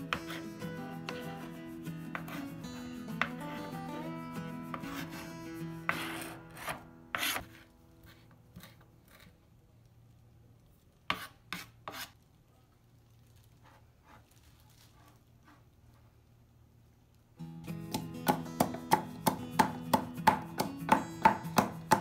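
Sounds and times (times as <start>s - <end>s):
knife chopping on cutting board: 0.1s - 1.5s, 17.9s - 22.0s
knife scraping cutting board: 0.1s - 3.4s, 4.7s - 9.3s, 11.1s - 12.2s.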